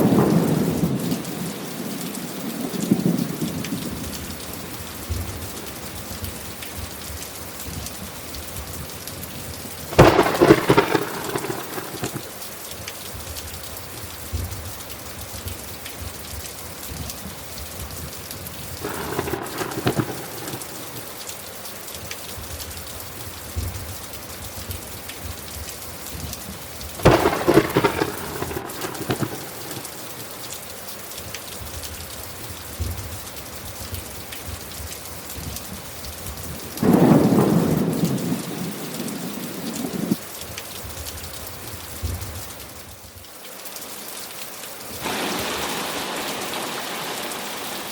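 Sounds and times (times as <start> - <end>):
thunder cracks: 0.0 - 1.5, 9.9 - 12.3, 18.8 - 21.1, 27.0 - 30.4, 36.8 - 40.2, 45.0 - 47.9
steady rain falling: 0.0 - 47.9.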